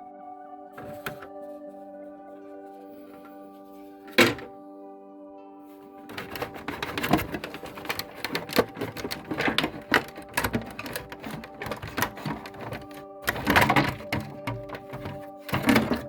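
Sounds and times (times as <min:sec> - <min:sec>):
tools clicking on plastic casing: 0:00.8 - 0:01.4, 0:04.2 - 0:04.5, 0:06.1 - 0:16.0.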